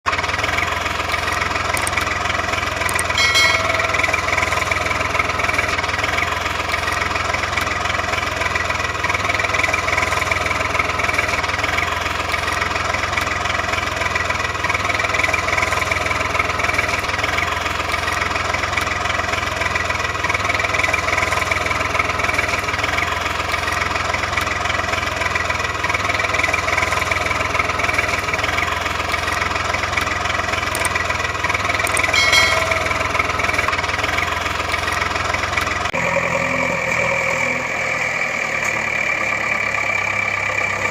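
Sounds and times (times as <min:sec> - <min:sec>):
engine running steadily: 0:00.0 - 0:40.9
brief high-pitched tone: 0:02.9 - 0:05.0, 0:31.9 - 0:33.7.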